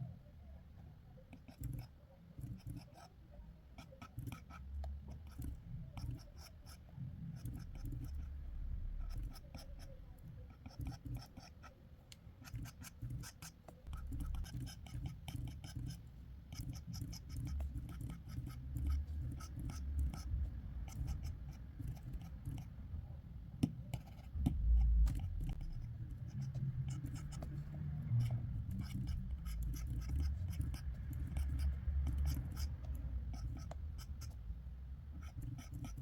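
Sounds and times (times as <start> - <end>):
pencil scratching on paper: 1.3 - 11.8, 12.4 - 22.8, 23.6 - 34.4, 35.1 - 36.0
low rubbing rumble: 24.3 - 35.1.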